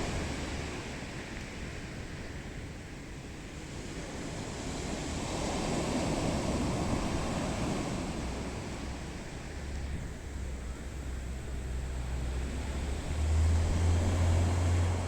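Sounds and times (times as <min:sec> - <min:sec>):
waves breaking on beach: 0:03.5 - 0:09.7, 0:12.0 - 0:15.0.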